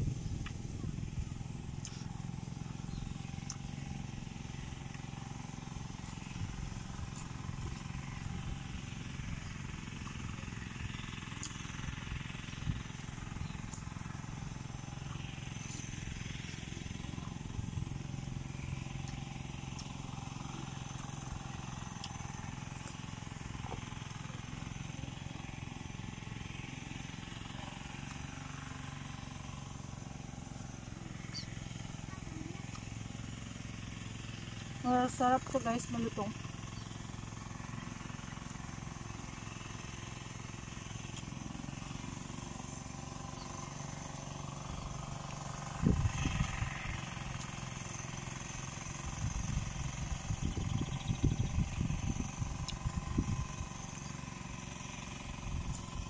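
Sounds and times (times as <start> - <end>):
steady low rumble: 0.0 - 11.0, 49.1 - 54.0
crunching and chewing: 1.6 - 2.4, 3.1 - 8.5, 18.5 - 24.7, 41.0 - 42.5, 43.5 - 48.0.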